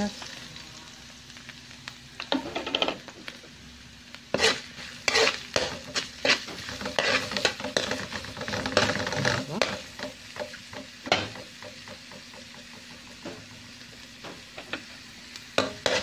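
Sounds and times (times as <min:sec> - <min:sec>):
garlic and onion sizzling in oil: 0:00.0 - 0:16.0
spatula scraping a pan: 0:04.3 - 0:10.2, 0:15.6 - 0:16.0.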